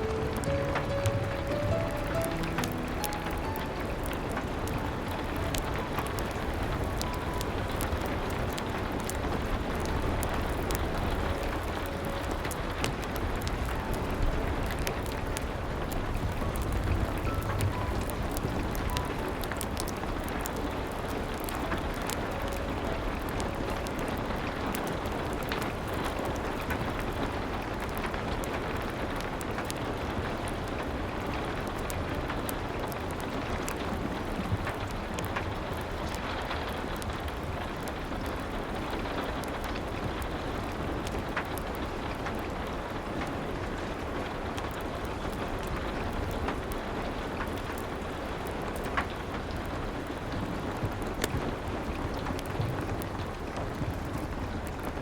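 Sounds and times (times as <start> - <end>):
rain hissing: 0.0 - 27.3
wood fire crackling and popping: 0.0 - 55.0.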